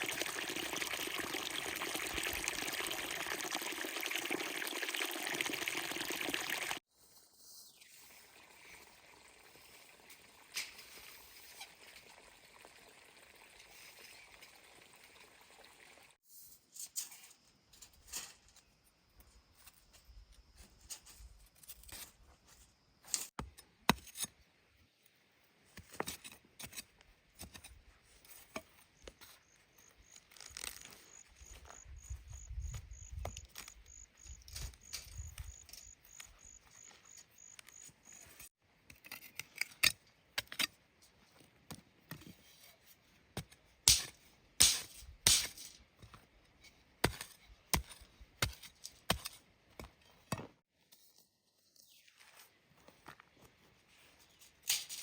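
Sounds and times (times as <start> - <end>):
clinks knocks and scrapes: 16.3 - 18.7, 37.2 - 51.2, 54.0 - 55.0.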